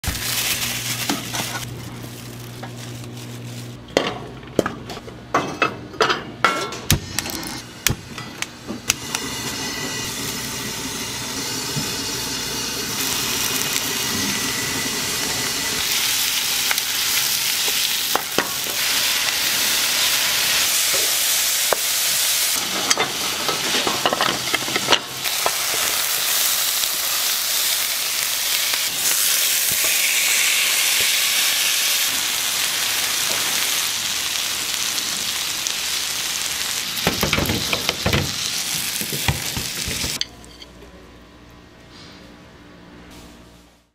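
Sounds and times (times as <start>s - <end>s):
food sizzling: 0.0s - 3.8s, 8.9s - 40.2s.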